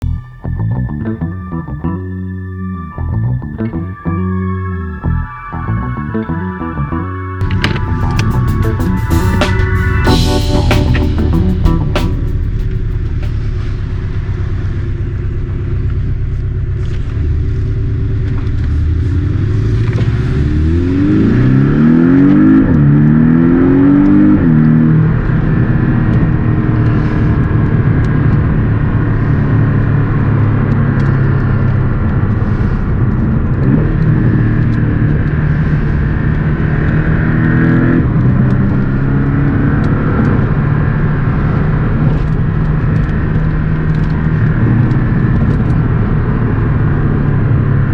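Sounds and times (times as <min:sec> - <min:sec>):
car engine accelerating with upshifts: 0:16.8 - 0:47.9.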